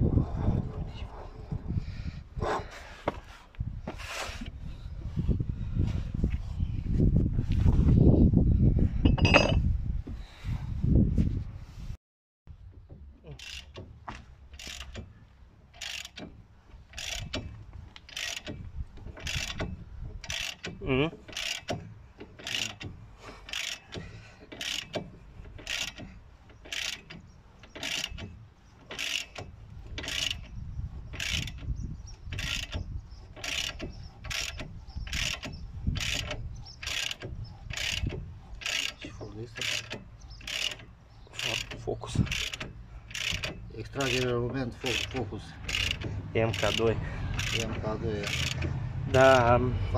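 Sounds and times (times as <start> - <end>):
creaking squeak: 12.8 - 49.4
ratchet wrench clicking: 13.4 - 13.8, 14.5 - 49.4.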